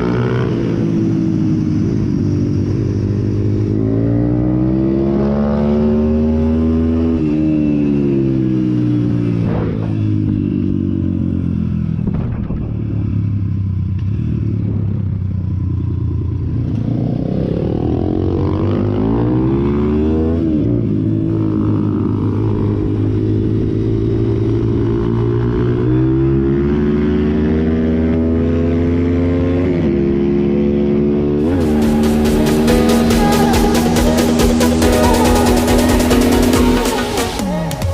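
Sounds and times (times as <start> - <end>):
motorbike engine revving: 12.7 - 37.9.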